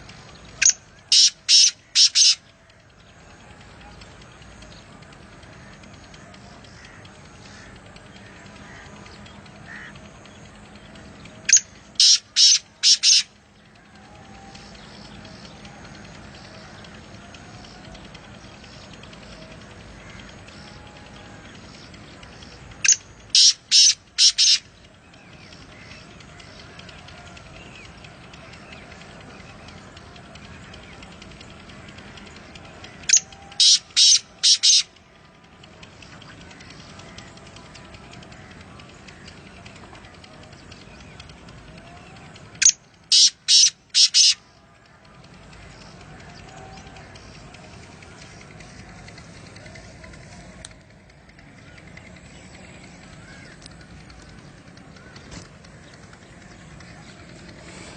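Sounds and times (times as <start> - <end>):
bird giving harsh calls: 0.6 - 2.5, 5.6 - 10.1, 11.5 - 13.4, 22.4 - 24.7, 33.0 - 34.9, 42.6 - 44.4.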